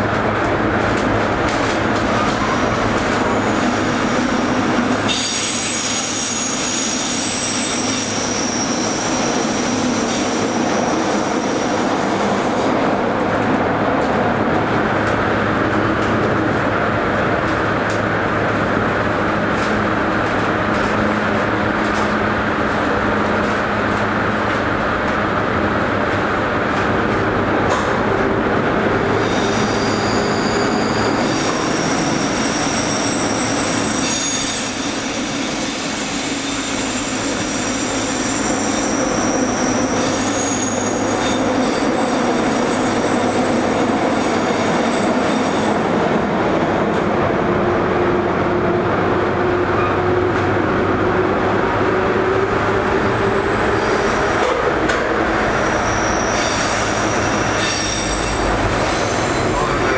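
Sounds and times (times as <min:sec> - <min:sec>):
electric train running in tunnel: 0:00.0 - 0:59.9
high-pitched wheel squeals: 0:05.1 - 0:12.5, 0:29.0 - 0:45.9, 0:53.2 - 0:59.8.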